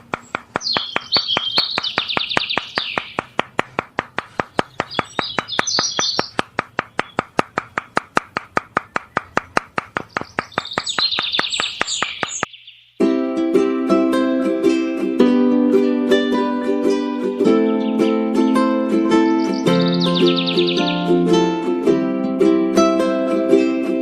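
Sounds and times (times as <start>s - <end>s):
rapid ticking: 0.0s - 12.5s
small birds chirping: 0.0s - 13.0s, 17.6s - 18.2s, 19.3s - 21.2s.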